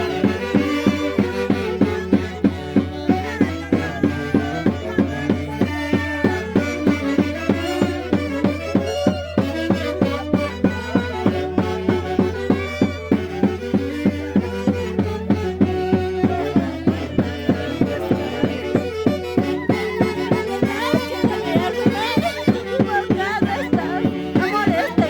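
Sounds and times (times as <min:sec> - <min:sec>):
quick drum beat: 0:00.0 - 0:09.2, 0:09.8 - 0:25.0
violin melody: 0:00.0 - 0:25.0.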